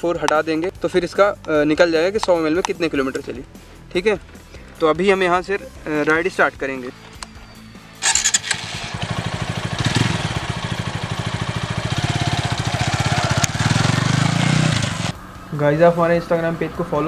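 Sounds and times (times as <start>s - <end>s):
motorcycle engine starting and running: 8.0s - 15.5s.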